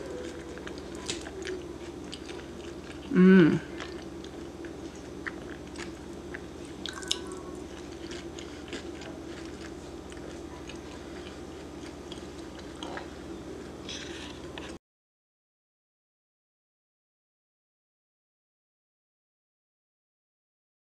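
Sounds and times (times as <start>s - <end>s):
person chewing: 0.0s - 14.8s
steady low hum: 0.0s - 14.8s.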